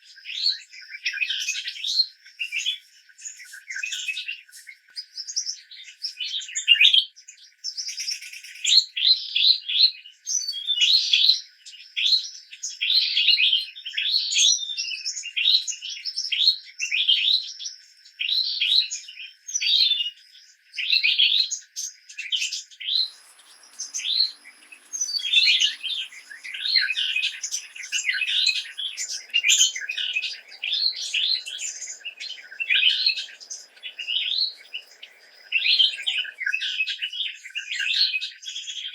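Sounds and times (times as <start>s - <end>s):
birds chirping: 22.9s - 37.2s
faint steady high tone: 23.0s - 36.9s.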